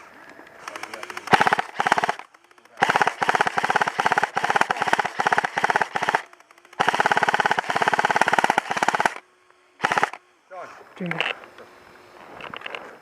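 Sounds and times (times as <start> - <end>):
airsoft gun firing bursts: 0.6 - 9.2, 9.8 - 10.2.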